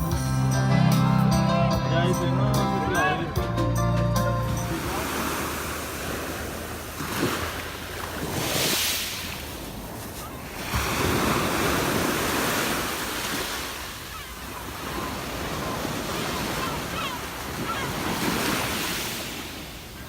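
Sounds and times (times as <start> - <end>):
sea waves washing onto shore: 4.7 - 20.0.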